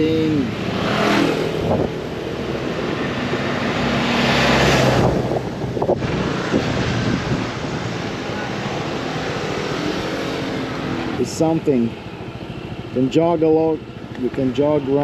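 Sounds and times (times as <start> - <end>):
wind buffeting microphone: 0.5 - 10.8.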